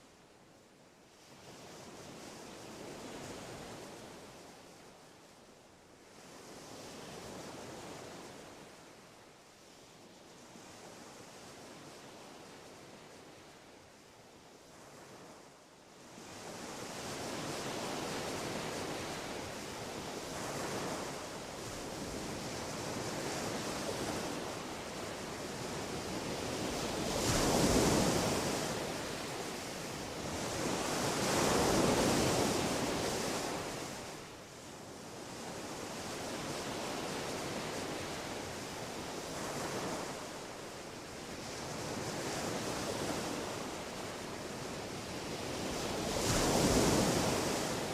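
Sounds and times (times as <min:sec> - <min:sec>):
surf washing on shore: 0:16.2 - 0:47.9.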